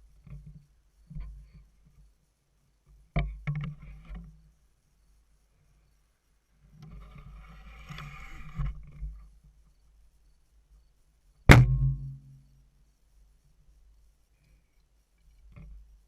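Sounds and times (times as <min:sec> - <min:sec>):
scraping rustling sound: 0:06.8 - 0:09.1
bowstring buzzing vibration: 0:11.5 - 0:12.5.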